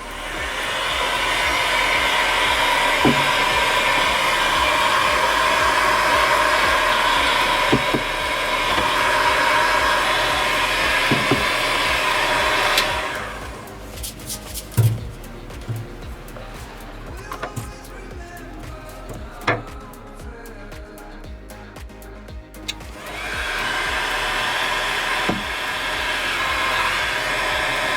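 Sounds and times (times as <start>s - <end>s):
electric motor whirring: 0.0s - 20.0s, 22.6s - 27.9s.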